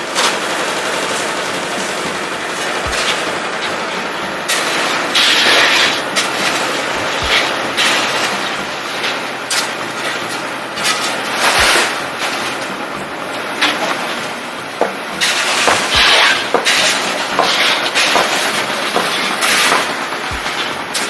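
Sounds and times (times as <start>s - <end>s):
concrete mixer churning: 0.0s - 21.0s.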